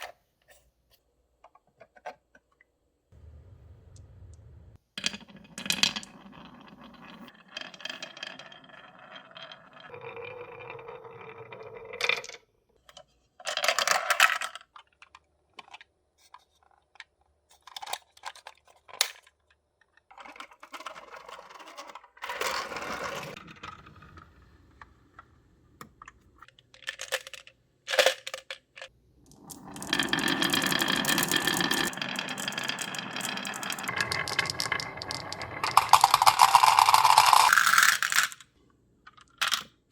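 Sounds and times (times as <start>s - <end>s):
marbles rolling on track: 5.0s - 12.4s, 21.3s - 24.2s, 29.3s - 38.4s
marbles clicking and knocking: 28.4s - 38.4s.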